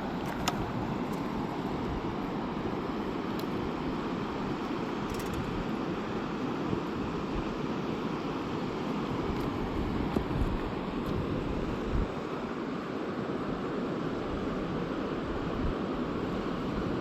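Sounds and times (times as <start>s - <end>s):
river water rushing: 0.0s - 5.1s.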